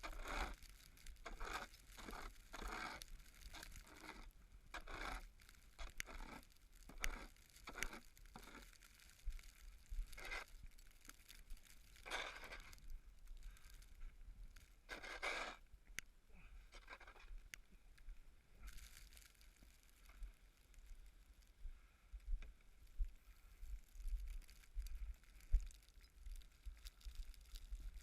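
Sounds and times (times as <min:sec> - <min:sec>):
snow crunching and scraping: 0:00.0 - 0:14.0, 0:14.8 - 0:15.6.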